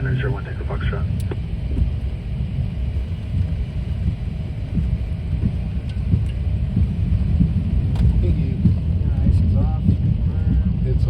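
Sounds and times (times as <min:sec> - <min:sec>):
jet engine low rumble: 0:00.0 - 0:11.0.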